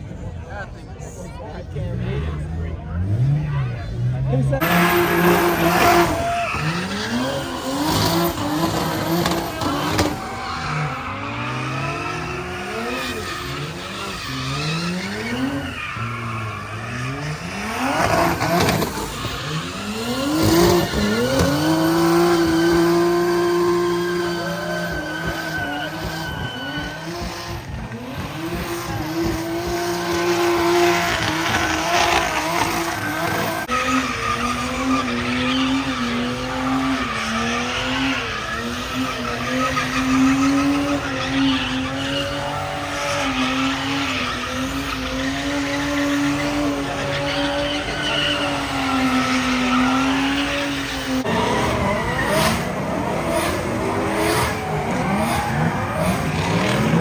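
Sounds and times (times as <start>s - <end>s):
tires squealing: 0.4s - 57.0s
car engine at high revs: 1.3s - 57.0s.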